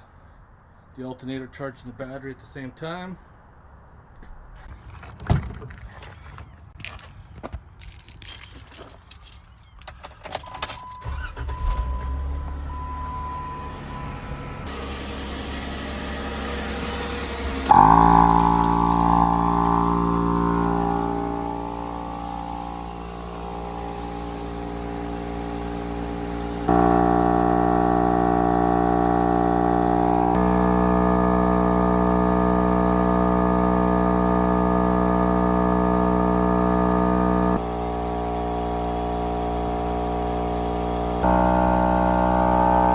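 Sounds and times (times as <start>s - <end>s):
keys rattling: 5.7s - 11.0s, 11.6s - 12.1s
car engine starting and idling: 10.0s - 42.9s
air compressor motor drone: 12.2s - 42.9s.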